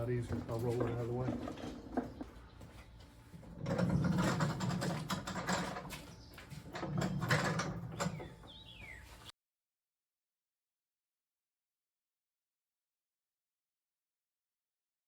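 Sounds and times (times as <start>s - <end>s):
caster wheels rolling on concrete: 0.0s - 8.7s.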